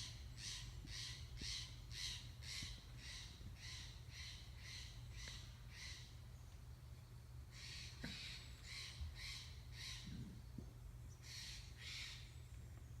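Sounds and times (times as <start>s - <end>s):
low steady background hum: 0.0s - 13.0s
bird giving harsh raspy calls: 7.5s - 10.1s, 11.2s - 12.3s.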